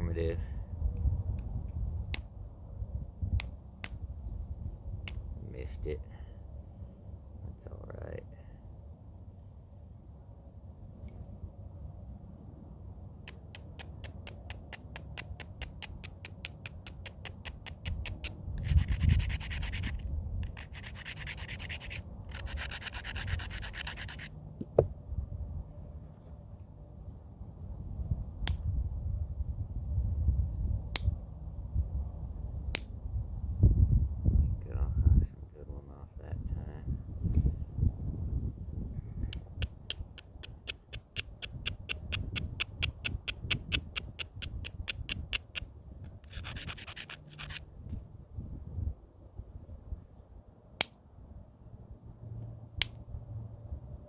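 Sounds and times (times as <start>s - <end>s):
stone scraping against stone: 16.7s - 24.3s, 42.8s - 47.7s
stone striking flint: 39.4s - 47.6s.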